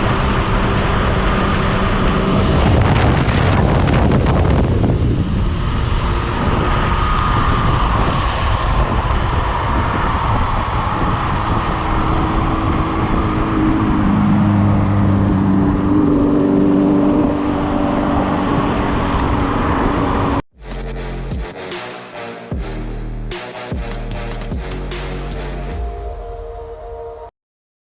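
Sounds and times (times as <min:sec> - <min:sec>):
vehicle engine hum: 0:00.0 - 0:03.4, 0:04.1 - 0:21.2
wind rushing over microphone: 0:00.0 - 0:20.4
road noise: 0:00.0 - 0:27.2
music: 0:20.6 - 0:27.3.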